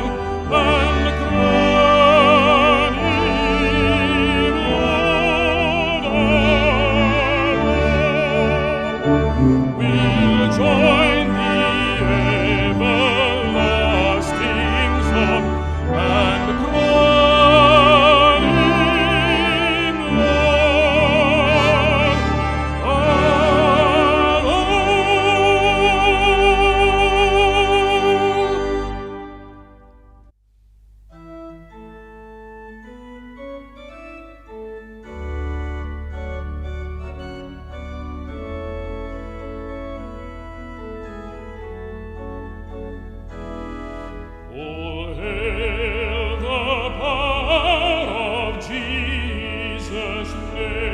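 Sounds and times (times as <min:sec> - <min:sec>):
baritone voice singing a hymn: 0:00.0 - 0:29.3, 0:44.4 - 0:50.9
brass ensemble: 0:00.0 - 0:30.3, 0:31.1 - 0:50.9.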